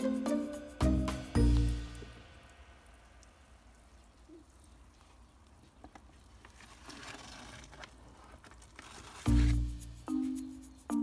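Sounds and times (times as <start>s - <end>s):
water sprinkling onto soil: 0.0s - 11.0s.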